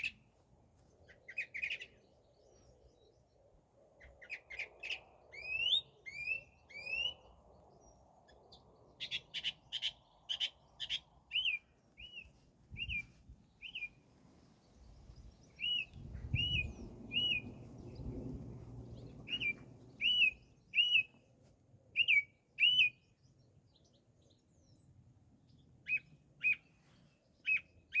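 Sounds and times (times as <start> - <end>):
songbird singing: 0.0 - 28.0
faint low rumble: 14.2 - 20.7.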